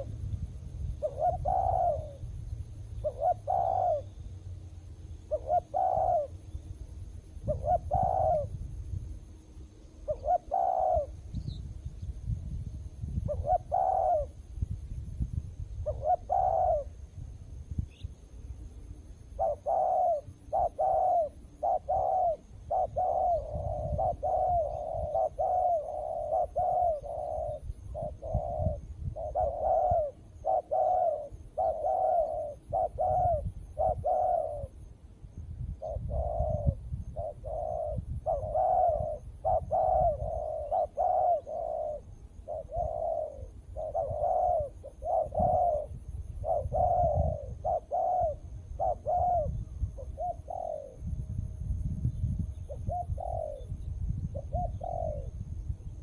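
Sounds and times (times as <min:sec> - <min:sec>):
doves cooing: 0:01.0 - 0:02.2, 0:03.0 - 0:04.3, 0:05.2 - 0:06.4, 0:07.4 - 0:08.6, 0:10.0 - 0:11.5, 0:13.3 - 0:14.4, 0:15.8 - 0:17.0, 0:19.4 - 0:34.8, 0:35.8 - 0:51.0, 0:52.7 - 0:53.7, 0:54.3 - 0:55.4.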